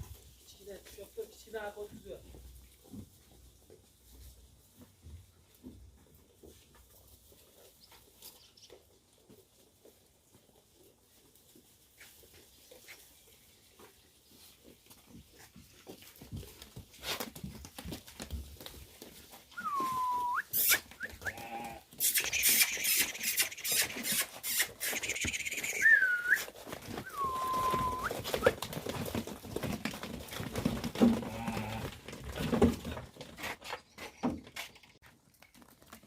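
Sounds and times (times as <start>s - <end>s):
short whistle-like tones: 19.6s - 21.4s, 22.0s - 28.5s
sheep bleating: 21.2s - 21.9s, 31.1s - 32.0s
rustling and knocks: 26.5s - 35.6s.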